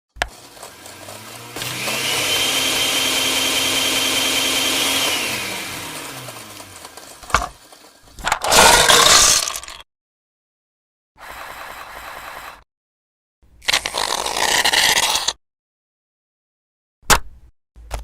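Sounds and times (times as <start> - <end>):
small electric motor whining: 0.2 - 7.9.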